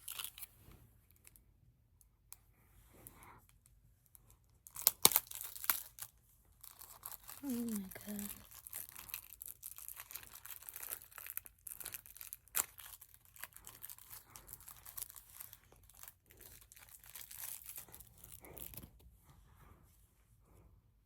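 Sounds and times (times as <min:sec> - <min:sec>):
packaging crinkling: 0:04.6 - 0:19.0.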